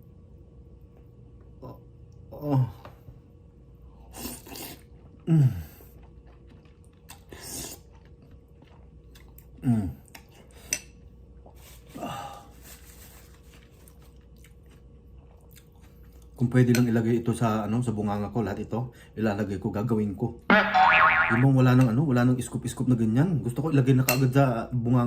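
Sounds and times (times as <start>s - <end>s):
person chewing: 4.2s - 10.4s, 14.1s - 16.3s.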